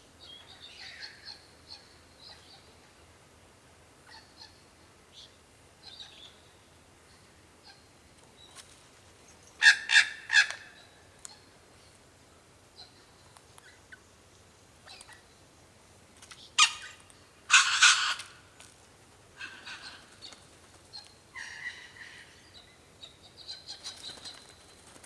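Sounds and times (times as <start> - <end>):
wild birds calling: 9.6 - 11.5, 16.4 - 18.5, 19.3 - 25.0.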